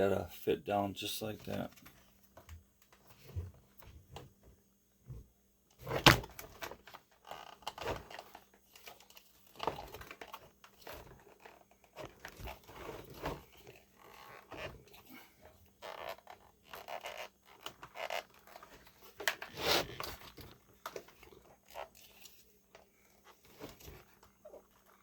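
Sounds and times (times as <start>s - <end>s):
plastic parts clicking and knocking: 5.7s - 25.0s.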